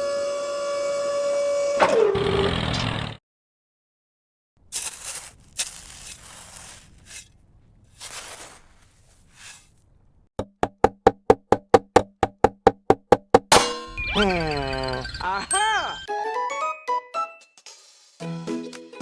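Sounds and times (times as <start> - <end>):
rough scraping: 4.6 - 10.2
fast sharp knocks: 10.4 - 13.6.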